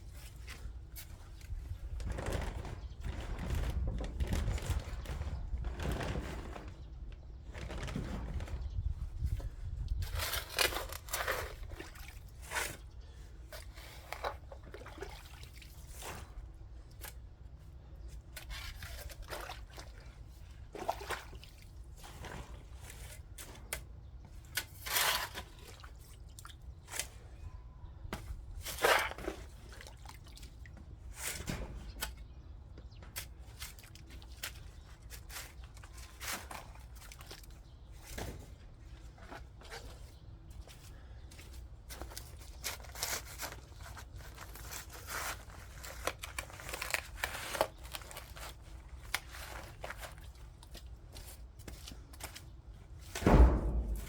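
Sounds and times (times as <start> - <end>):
digging tool scraping soil: 10.0 - 12.9, 24.6 - 25.6.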